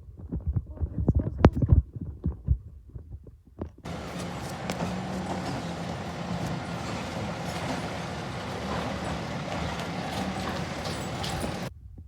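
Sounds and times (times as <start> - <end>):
garbage truck engine running: 3.9 - 11.7.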